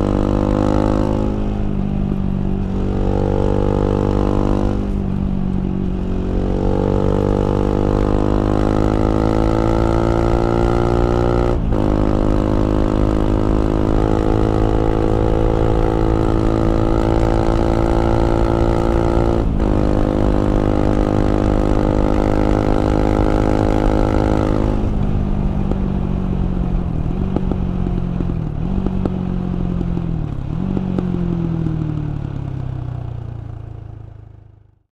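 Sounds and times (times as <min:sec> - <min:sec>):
engine revving on downshifts: 0:00.0 - 0:05.2, 0:05.8 - 0:25.1
motorcycle engine accelerating: 0:00.0 - 0:34.8.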